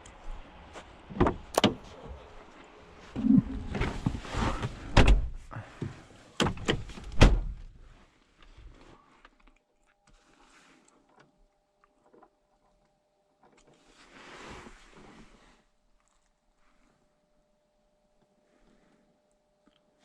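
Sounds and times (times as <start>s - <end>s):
faint steady tone: 8.5s - 14.2s, 15.7s - 20.0s.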